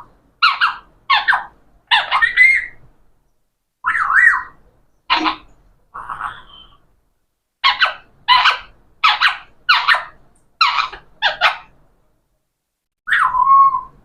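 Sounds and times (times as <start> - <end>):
parrot screeching: 0.4 - 2.8, 3.8 - 6.8, 7.6 - 11.7, 13.1 - 14.0.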